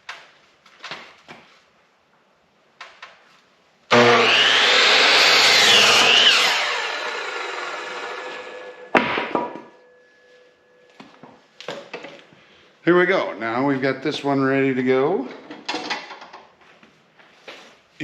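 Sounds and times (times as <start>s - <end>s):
electric saw cutting wood: 3.9s - 9.0s.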